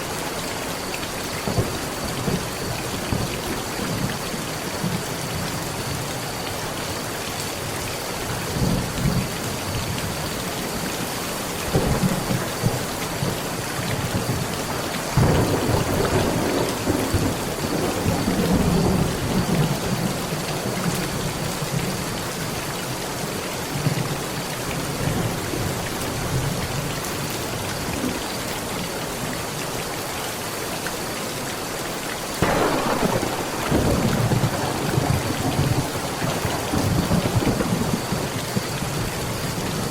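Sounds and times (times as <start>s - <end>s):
heavy rain pouring: 0.0s - 39.9s
thunder rumbling: 11.7s - 21.4s, 32.4s - 39.9s.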